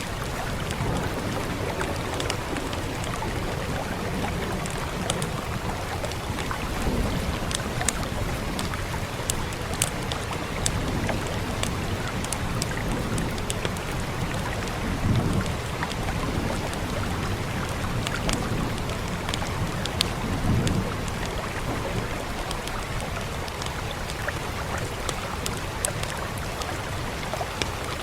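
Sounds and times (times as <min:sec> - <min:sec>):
wood fire crackling: 0:00.0 - 0:27.7
steady rain hiss: 0:00.0 - 0:28.0.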